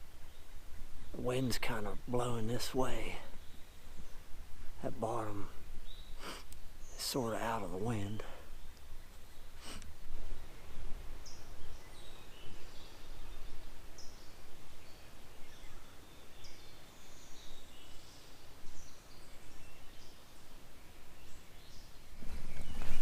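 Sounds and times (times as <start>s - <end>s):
songbirds chirping: 0.0s - 23.0s
wind rumbling on microphone: 8.2s - 20.2s, 21.0s - 23.0s.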